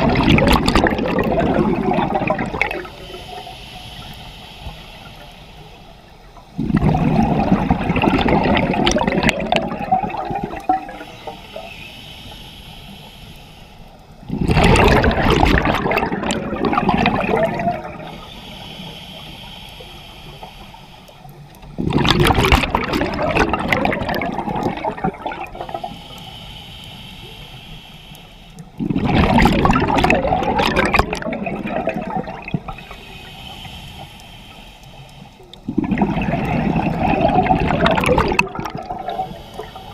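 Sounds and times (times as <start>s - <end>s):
gurgling exhaled bubbles: 0.0s - 3.2s, 6.6s - 11.7s, 14.2s - 18.3s, 21.6s - 26.0s, 28.8s - 33.0s, 35.5s - 39.9s
regulator inhalation hiss: 2.8s - 6.4s, 10.1s - 14.3s, 18.0s - 21.7s, 25.5s - 28.8s, 32.6s - 35.6s, 39.0s - 39.9s.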